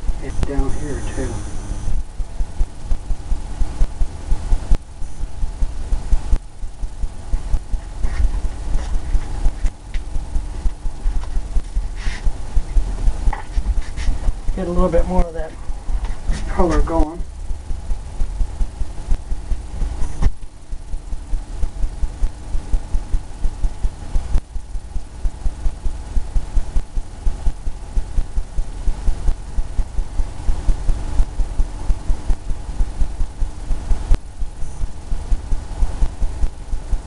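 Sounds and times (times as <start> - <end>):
paint brush dabbing on canvas: 7.3 - 17.0.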